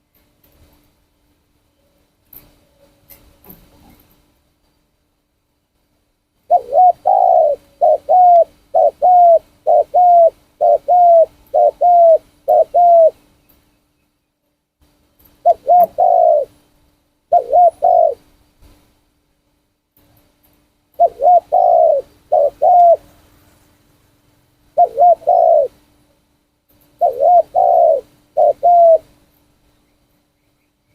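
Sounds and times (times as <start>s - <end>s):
dove cooing: 6.5s - 13.2s, 15.4s - 16.6s, 17.3s - 18.3s, 21.0s - 23.2s, 24.7s - 25.8s, 26.8s - 29.1s.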